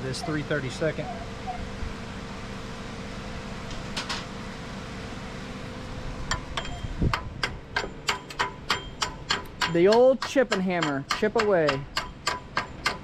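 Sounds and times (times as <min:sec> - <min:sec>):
hammer tapping metal: 0:06.3 - 0:13.0.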